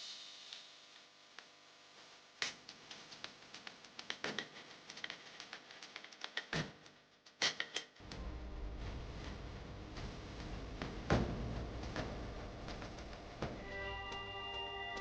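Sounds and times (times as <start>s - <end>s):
low hum: 8.0s - 14.8s.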